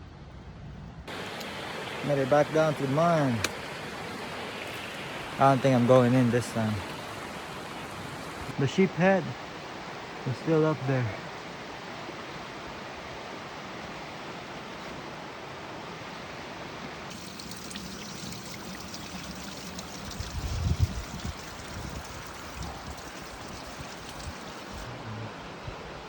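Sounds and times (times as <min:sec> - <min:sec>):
faint ticks: 0:01.1 - 0:05.0
stream water running: 0:01.1 - 0:14.8, 0:15.6 - 0:25.9.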